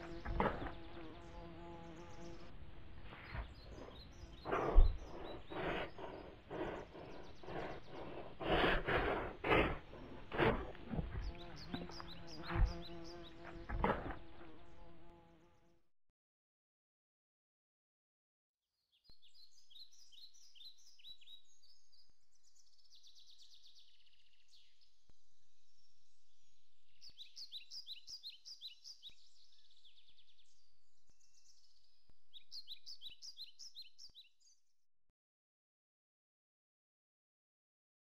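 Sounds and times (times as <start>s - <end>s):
birds chirping: 0.0s - 14.9s, 19.2s - 34.6s.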